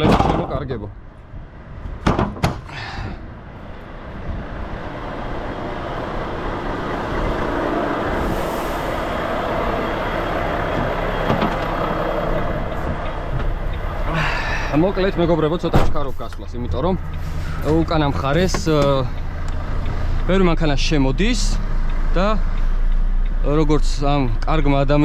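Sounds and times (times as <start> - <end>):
sharp knocks: 2.0 - 2.7
truck diesel engine droning: 2.7 - 25.0.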